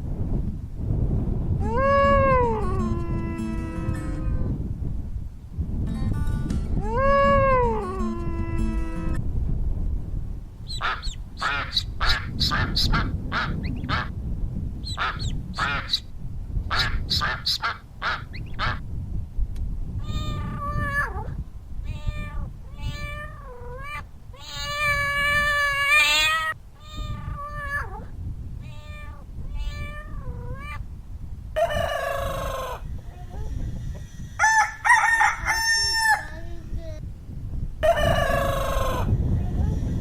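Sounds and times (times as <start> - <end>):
animal calls: 10.7 - 14.1, 14.9 - 16.0.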